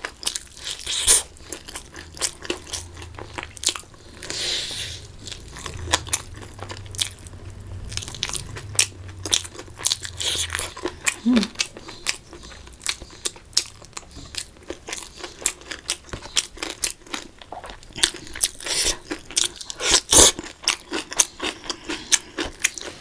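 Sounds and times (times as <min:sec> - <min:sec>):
chewing and crunching: 0:00.0 - 0:23.0.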